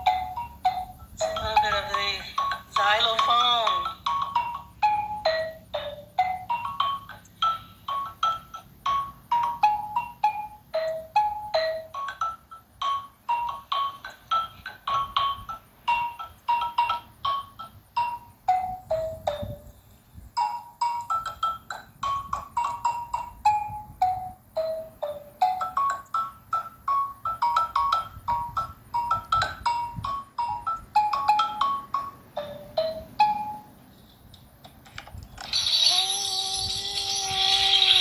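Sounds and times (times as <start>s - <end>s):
xylophone notes: 0.0s - 33.8s, 35.5s - 38.0s
tambourine shaking: 35.5s - 38.0s.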